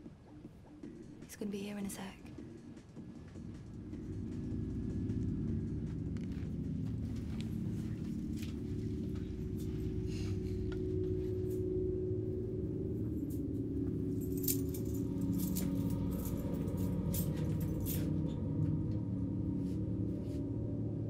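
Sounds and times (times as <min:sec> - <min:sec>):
low droning film score pad: 0:00.0 - 0:21.0
metallic clinking and jangling: 0:13.0 - 0:18.4.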